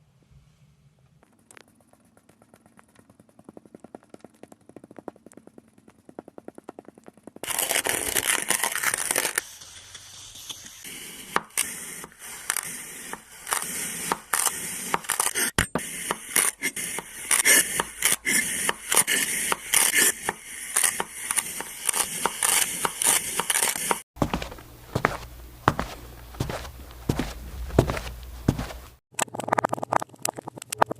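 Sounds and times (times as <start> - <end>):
sand being cut and crushed: 7.4 - 29.0.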